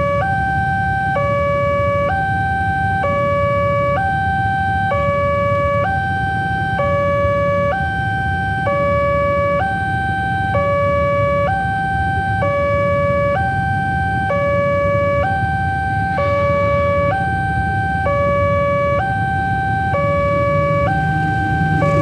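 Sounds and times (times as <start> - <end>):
level crossing two-tone alarm: 0.0 - 22.0
steady low rumble: 20.1 - 22.0.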